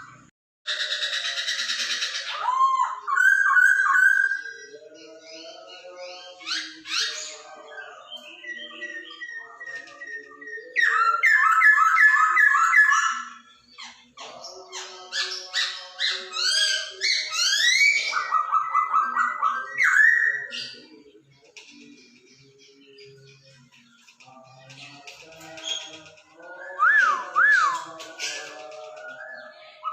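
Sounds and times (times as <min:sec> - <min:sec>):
bird singing whistling song: 0:08.0 - 0:14.5, 0:16.4 - 0:20.8, 0:24.8 - 0:29.9.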